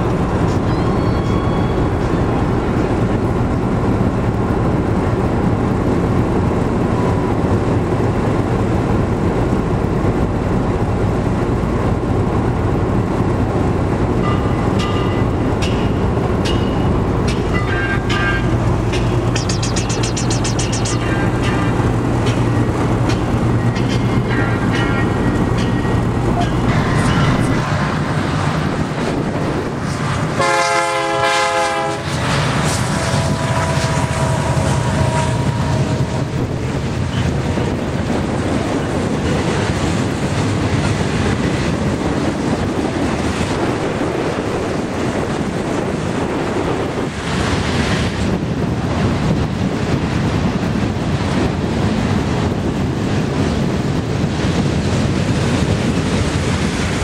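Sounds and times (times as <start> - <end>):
freight train rumbling on rails: 0.0 - 57.0
train horn: 30.4 - 32.2, 32.9 - 36.6.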